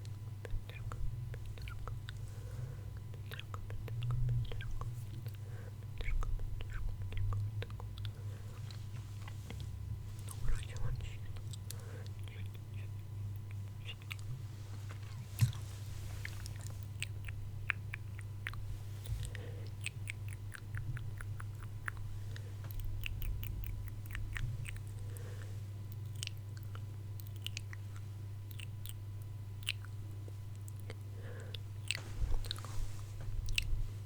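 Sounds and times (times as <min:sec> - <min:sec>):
wet mouth clicks and smacks: 0:15.4 - 0:18.6.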